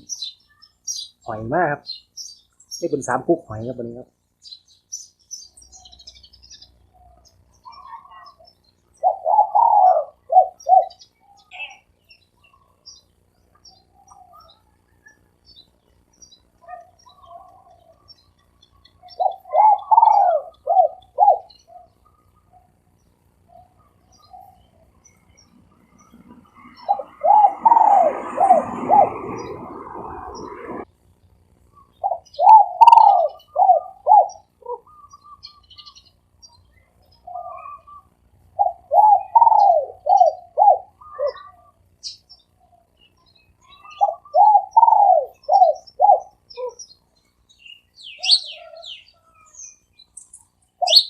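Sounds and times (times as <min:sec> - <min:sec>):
dove cooing: 0:06.9 - 0:12.8, 0:16.6 - 0:18.1, 0:18.9 - 0:22.7, 0:23.5 - 0:30.8, 0:31.8 - 0:35.6, 0:37.2 - 0:41.8, 0:43.7 - 0:46.8, 0:48.1 - 0:49.5.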